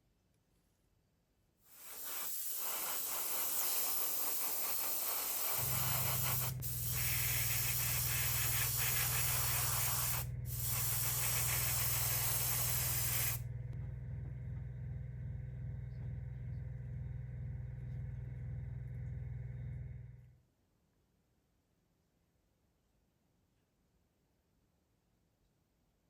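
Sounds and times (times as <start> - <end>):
paint spray hissing: 1.7 - 13.4
low motor hum: 5.6 - 20.4.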